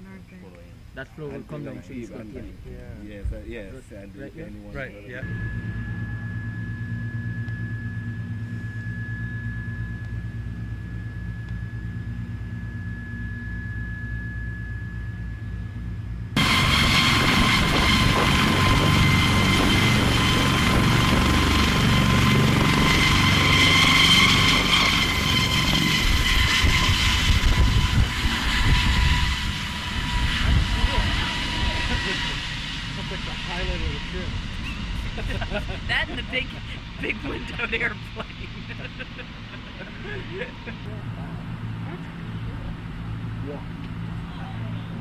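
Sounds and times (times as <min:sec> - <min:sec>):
aircraft engine drone: 0:00.0 - 0:45.0.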